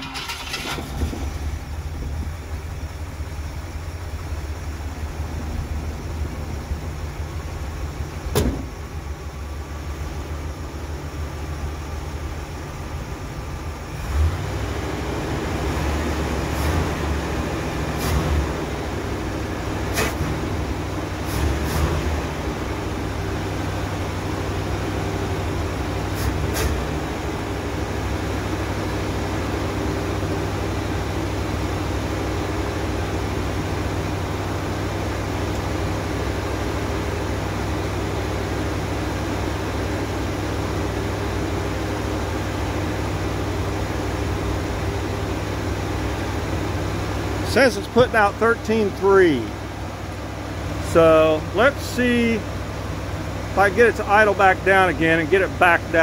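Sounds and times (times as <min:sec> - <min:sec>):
engine clicks and knocks: 0:00.0 - 0:04.6, 0:05.3 - 0:09.4
car engine idling: 0:00.0 - 0:56.0.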